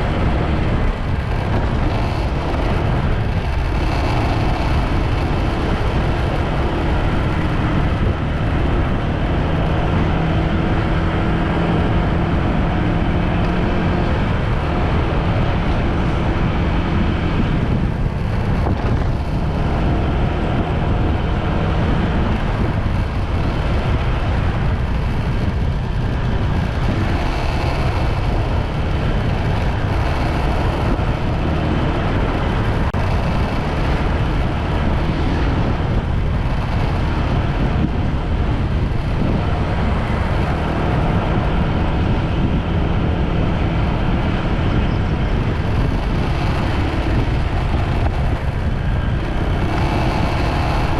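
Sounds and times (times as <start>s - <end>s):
motorbike engine: 0.0s - 50.9s
road noise: 0.0s - 50.9s.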